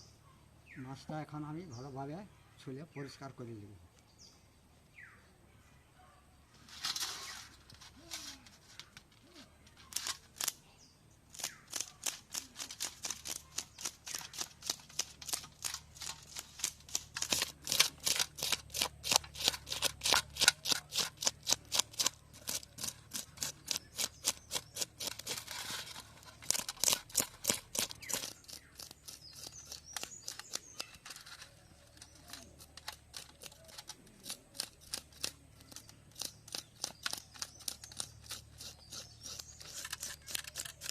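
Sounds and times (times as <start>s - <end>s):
blade scraping fish scales: 11.4s - 40.9s.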